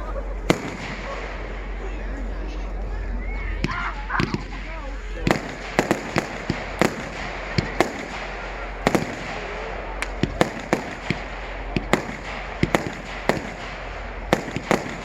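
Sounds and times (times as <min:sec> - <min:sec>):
steady background rumble: 0:00.0 - 0:15.0
fireworks bangs and cracks: 0:00.4 - 0:01.8, 0:03.6 - 0:15.0.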